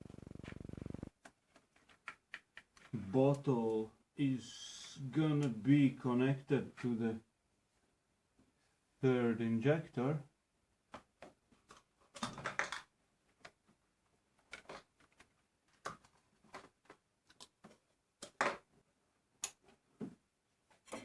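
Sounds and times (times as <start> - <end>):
hands handling small parts: 1.2 - 3.6, 10.9 - 18.7.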